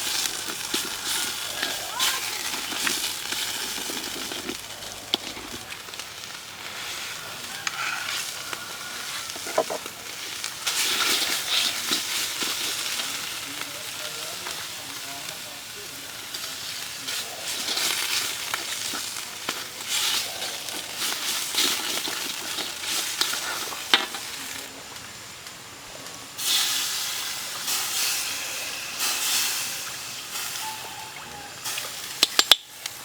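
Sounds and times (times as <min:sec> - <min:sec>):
food sizzling in a pan: 0:00.0 - 0:33.0.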